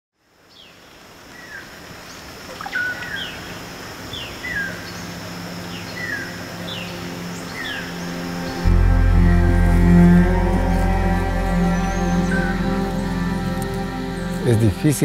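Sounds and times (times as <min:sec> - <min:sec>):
birds whistling falling calls: 0:01.4 - 0:09.0, 0:10.6 - 0:15.0
steady high whine: 0:04.6 - 0:15.0
low steady hum: 0:04.8 - 0:15.0.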